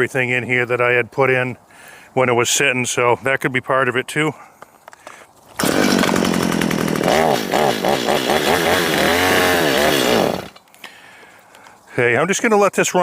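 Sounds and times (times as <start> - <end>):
chainsaw engine revving: 5.6 - 10.6.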